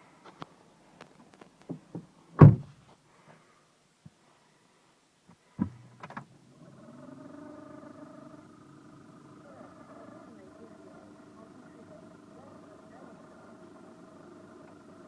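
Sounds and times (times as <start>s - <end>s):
car door thumping shut: 2.4s - 2.7s
car engine starting and idling: 8.0s - 15.0s.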